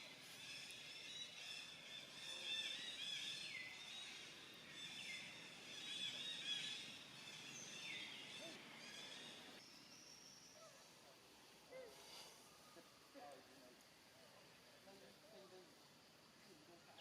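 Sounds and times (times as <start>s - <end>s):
birds chirping: 0.0s - 10.9s.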